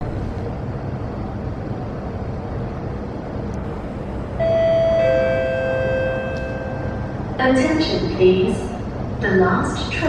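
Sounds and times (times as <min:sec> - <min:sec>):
rail station rumble: 0:00.0 - 0:10.0
public address chime: 0:04.4 - 0:08.5.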